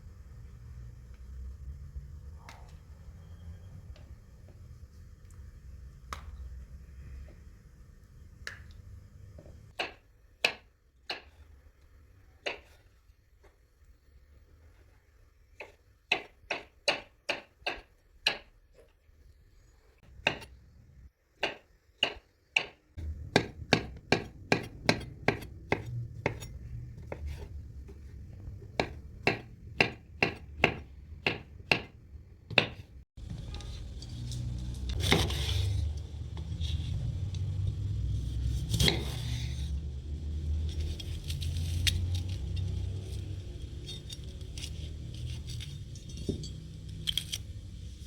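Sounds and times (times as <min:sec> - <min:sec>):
knife chopping on cutting board: 0:21.4 - 0:27.5, 0:28.7 - 0:32.9, 0:35.0 - 0:35.7, 0:38.5 - 0:39.4.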